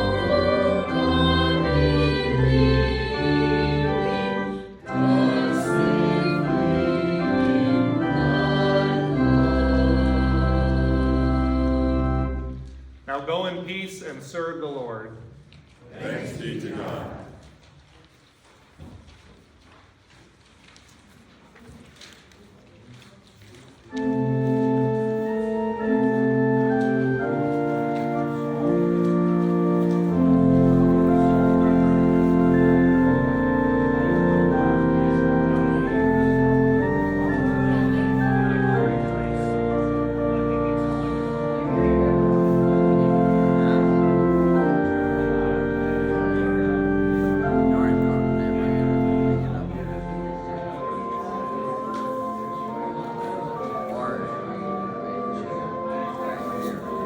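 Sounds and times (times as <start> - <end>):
voices singing a hymn: 0.0 - 12.6, 16.0 - 17.5, 24.0 - 57.0
organ accompaniment: 0.0 - 14.9, 23.9 - 57.0.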